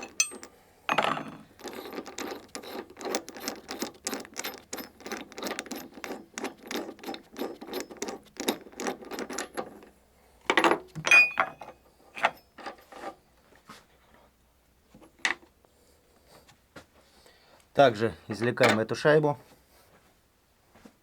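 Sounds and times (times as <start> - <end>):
metal clanks: 0.0 - 9.9, 10.5 - 13.0.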